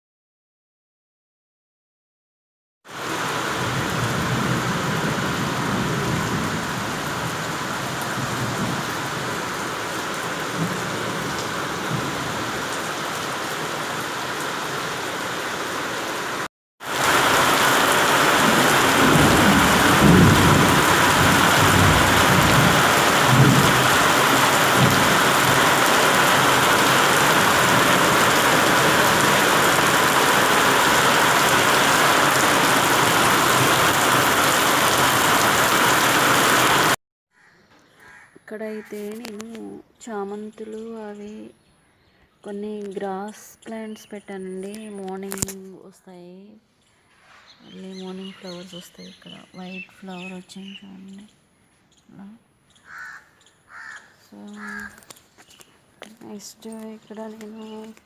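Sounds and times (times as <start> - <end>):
heavy rain: 2.9 - 37.0
low thunder rumbles: 18.4 - 25.8.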